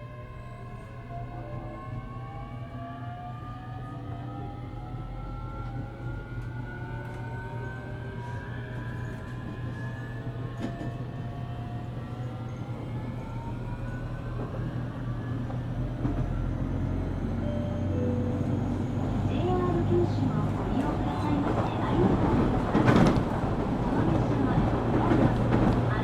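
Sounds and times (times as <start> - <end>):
train running gear rumble: 5.5 - 26.0.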